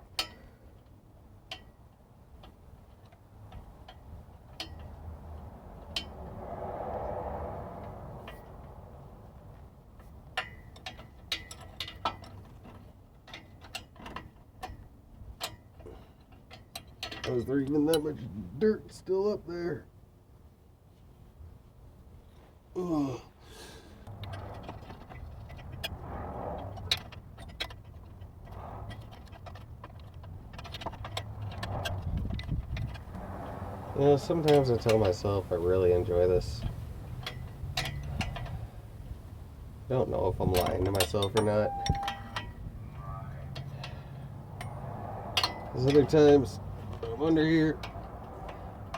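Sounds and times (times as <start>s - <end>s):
metal clinks of wrenches: 34.1s - 38.6s, 40.1s - 42.7s, 45.4s - 48.9s.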